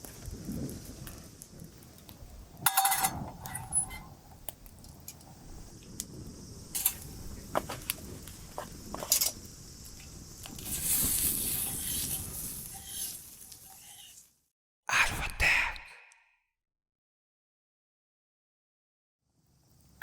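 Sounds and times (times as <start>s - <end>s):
loud steady hiss: 0.0s - 14.3s
campfire crackling and popping: 0.0s - 14.4s.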